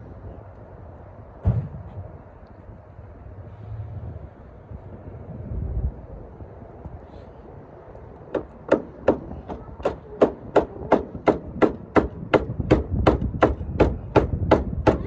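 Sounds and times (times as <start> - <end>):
rapid even knocking: 8.3 - 15.0.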